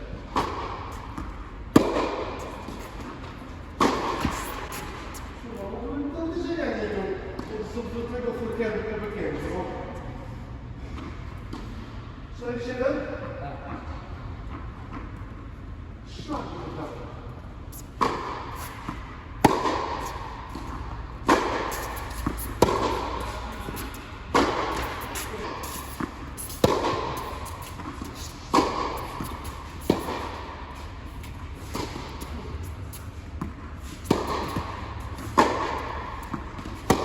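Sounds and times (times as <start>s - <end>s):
tennis racquets hitting ball: 0.3s - 5.3s, 17.8s - 37.0s.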